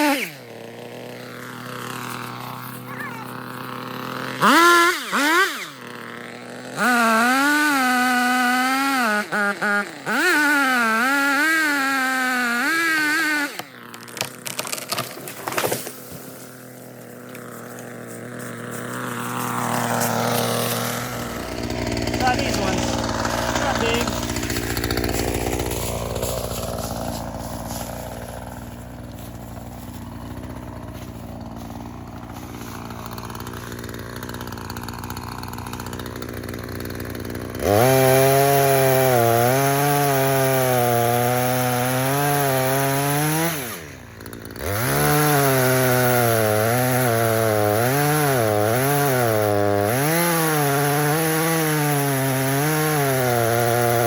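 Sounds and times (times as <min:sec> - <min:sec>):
chainsaw revving: 0:00.0 - 0:54.0.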